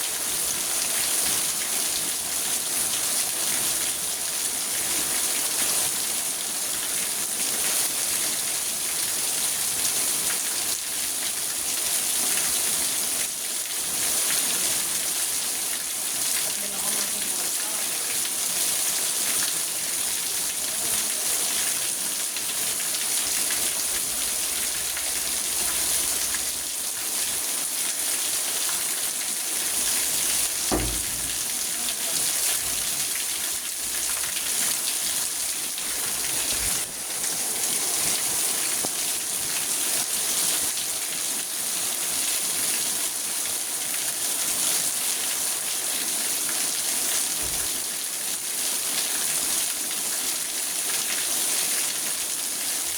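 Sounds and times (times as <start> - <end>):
rain on car roof: 27.9 - 40.8, 47.4 - 48.1
dull thud: 30.6 - 31.9.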